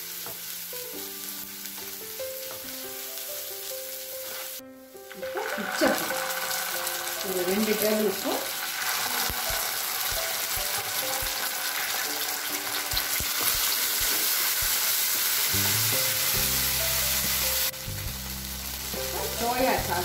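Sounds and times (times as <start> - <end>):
food sizzling in hot oil: 0.0 - 20.0
spatula stirring in pan: 4.2 - 4.6, 5.3 - 15.5.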